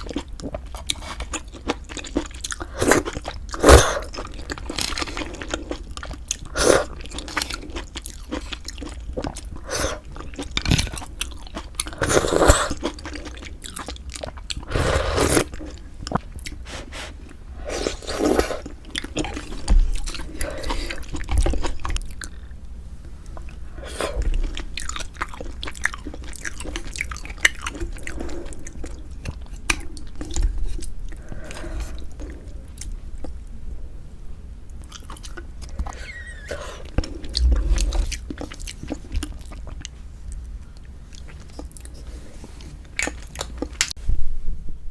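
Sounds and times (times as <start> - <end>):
person chewing with wet smacks: 0.0 - 14.7, 15.3 - 16.6, 17.2 - 22.5, 23.3 - 31.2.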